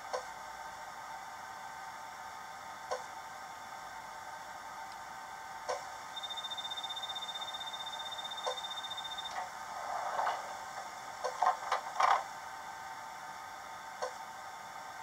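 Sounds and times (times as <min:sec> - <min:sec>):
air-conditioning hum: 0:00.0 - 0:15.0
rapid high warning beep: 0:06.1 - 0:09.4.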